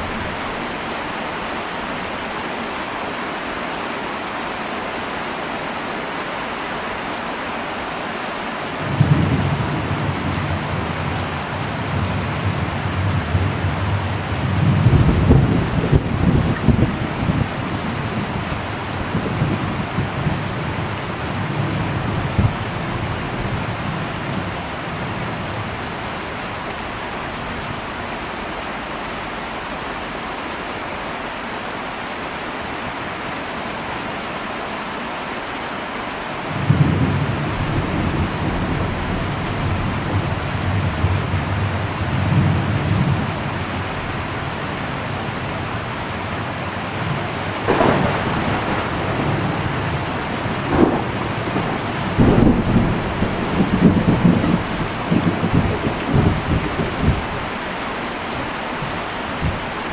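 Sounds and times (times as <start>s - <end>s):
heavy rain on metal roof: 0.0s - 59.9s
thunder rumbling: 8.8s - 27.8s, 36.5s - 58.0s.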